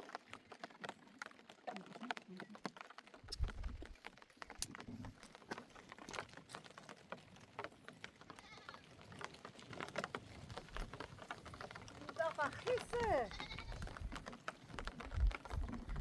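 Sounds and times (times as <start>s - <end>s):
light scattered ticks and taps: 0.0s - 16.0s
sheep and goats bleating: 8.2s - 9.0s, 11.4s - 14.0s.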